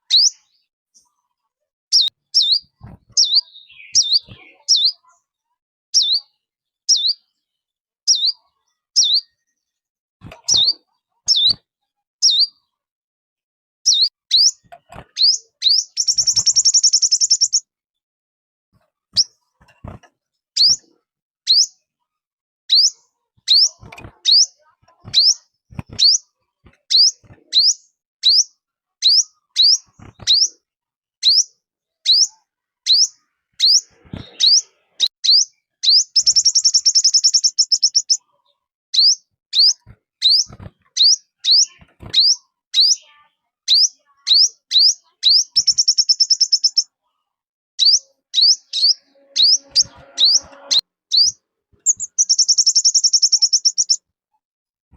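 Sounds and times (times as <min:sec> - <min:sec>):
buzzy bird trill: 0:01.9 - 0:05.0, 0:15.2 - 0:17.6, 0:32.1 - 0:38.2, 0:39.0 - 0:43.0, 0:43.7 - 0:46.9, 0:47.8 - 0:54.0
bird calling high falling notes: 0:48.8 - 0:50.8.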